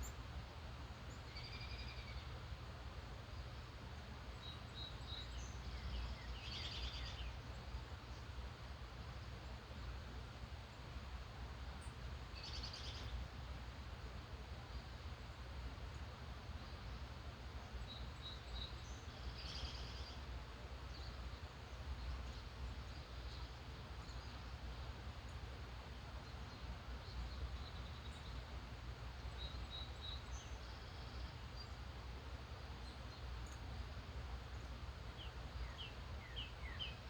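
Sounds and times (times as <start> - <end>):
distant birds singing: 20.8 - 37.0.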